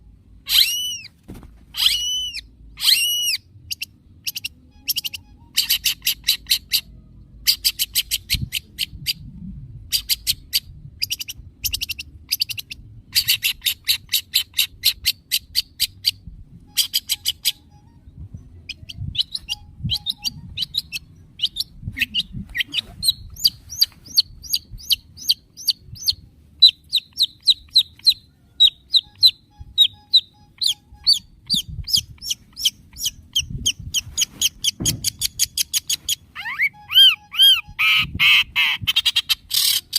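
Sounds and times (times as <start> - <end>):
bird harsh chattering: 1.8 - 6.9, 18.7 - 39.9
bird repeated clear notes: 4.2 - 6.9, 16.0 - 39.8.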